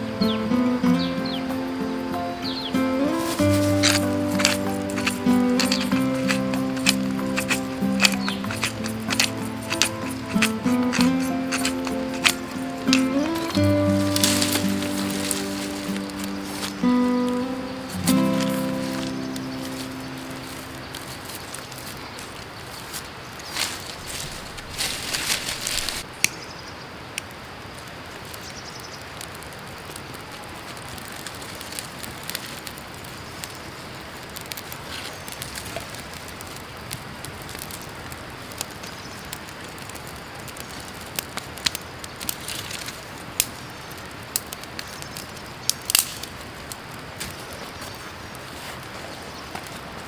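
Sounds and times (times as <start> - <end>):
creek water running: 0.0 - 26.1
cooking fire crackling: 0.0 - 26.4, 27.0 - 50.0
rustle: 0.0 - 50.0.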